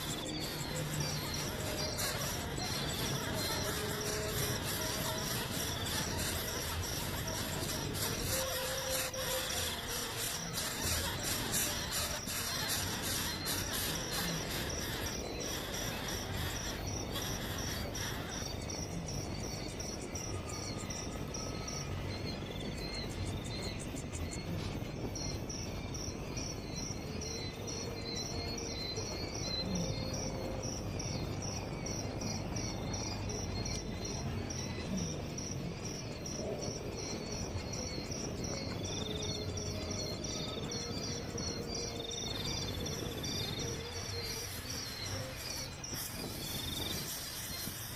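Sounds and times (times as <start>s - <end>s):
insects chirring: 0.0s - 47.9s
background hiss: 22.9s - 47.9s.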